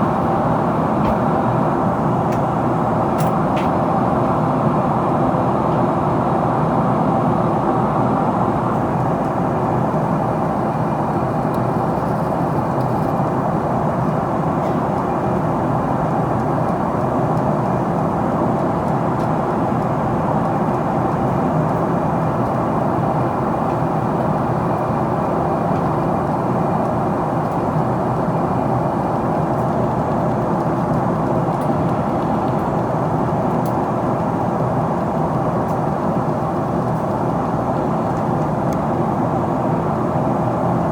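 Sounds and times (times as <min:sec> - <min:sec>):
jet engines humming: 0:00.0 - 0:06.6.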